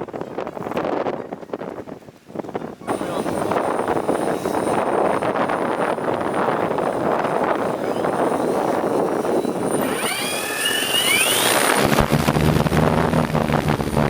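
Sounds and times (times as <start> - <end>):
gusty wind: 0.0 - 14.0
drone motor whines: 2.9 - 14.0.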